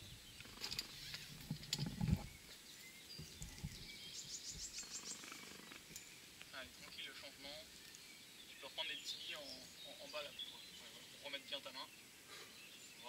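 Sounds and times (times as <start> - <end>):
small bird trilling: 3.2 - 6.2.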